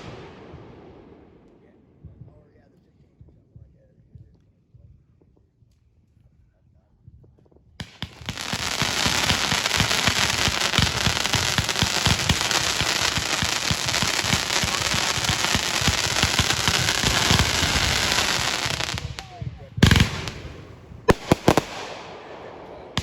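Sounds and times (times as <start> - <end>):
fireworks popping and crackling: 7.8 - 23.0.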